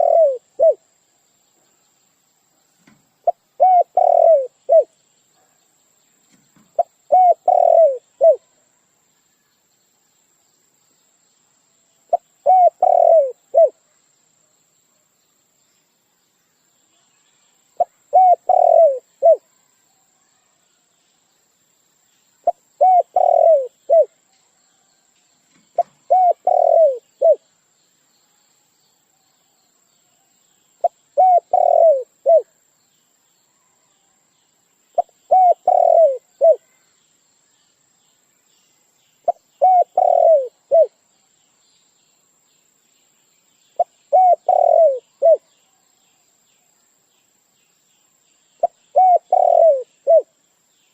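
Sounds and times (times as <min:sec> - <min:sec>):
dove-like cooing bird call: 0:00.0 - 0:00.9, 0:03.2 - 0:04.9, 0:06.6 - 0:08.5, 0:12.1 - 0:13.8, 0:17.8 - 0:19.5, 0:22.4 - 0:24.2, 0:25.8 - 0:27.4, 0:30.8 - 0:32.5, 0:35.0 - 0:36.8, 0:39.2 - 0:41.0, 0:43.8 - 0:45.5, 0:48.6 - 0:50.4.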